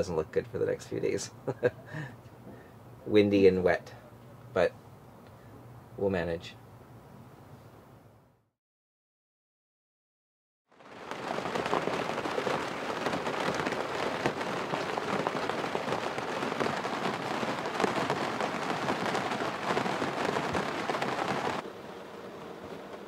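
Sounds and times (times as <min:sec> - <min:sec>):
rain pattering on canvas: 0:10.7 - 0:21.6.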